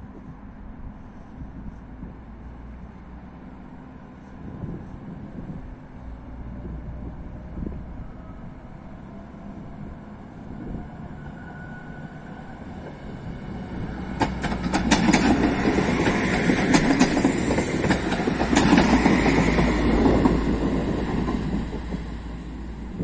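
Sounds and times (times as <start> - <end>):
diesel railcar engine rumbling: 0.0 - 23.0
wheels clicking over rail joints: 14.0 - 23.0.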